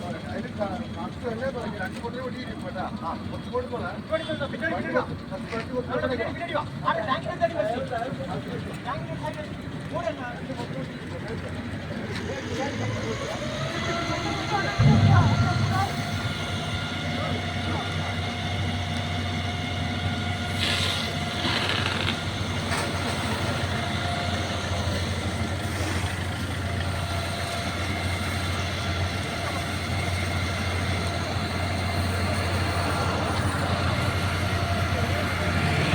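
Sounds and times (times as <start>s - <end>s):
vehicle rumble with road noise: 10.5s - 35.9s.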